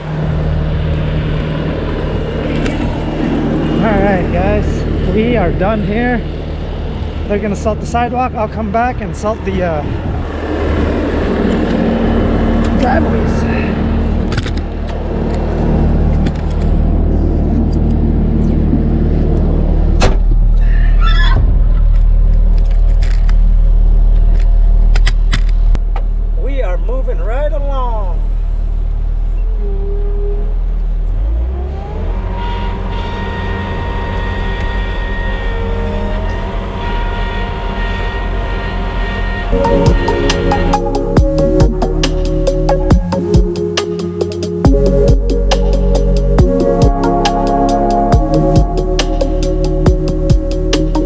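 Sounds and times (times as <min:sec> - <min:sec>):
vehicle engine running: 0:00.0 - 0:20.7, 0:39.5 - 0:51.0
constant low rumble: 0:00.0 - 0:33.0, 0:39.4 - 0:51.0
short wavering squeal: 0:20.6 - 0:21.9.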